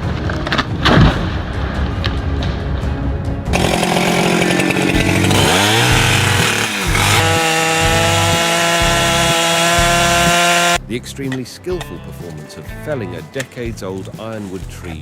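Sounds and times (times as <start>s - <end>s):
chainsaw cutting into tree: 3.5s - 10.8s.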